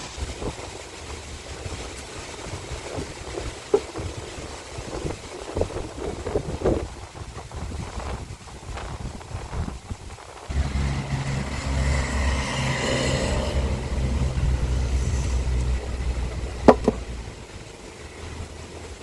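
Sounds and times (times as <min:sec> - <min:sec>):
deep steady rumble: 0:00.0 - 0:19.0
rising and falling hiss: 0:10.4 - 0:19.0.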